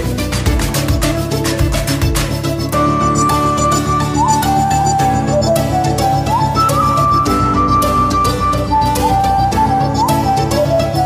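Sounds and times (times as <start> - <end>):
music with steady beat: 0.0 - 11.0
held melody note: 2.6 - 11.0.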